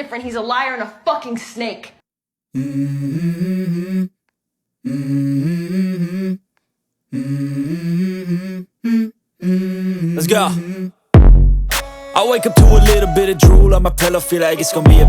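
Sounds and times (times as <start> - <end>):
person humming a tune: 2.6 - 4.2, 4.9 - 6.4, 7.1 - 11.0, 11.8 - 15.0.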